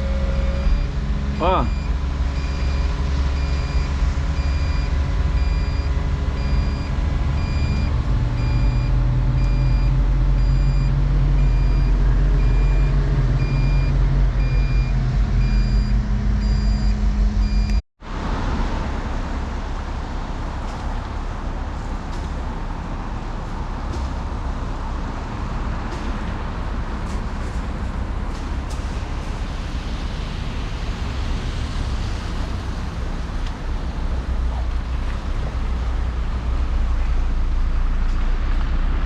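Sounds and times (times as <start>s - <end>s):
travel alarm beeping: 0.0s - 17.8s
excavator diesel engine under load: 0.0s - 39.0s.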